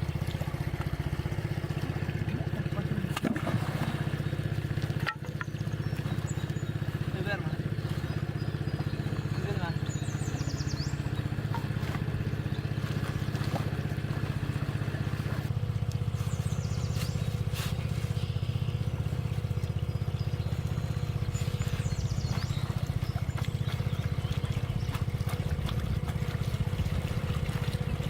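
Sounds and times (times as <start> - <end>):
small engine running: 0.0 - 28.0.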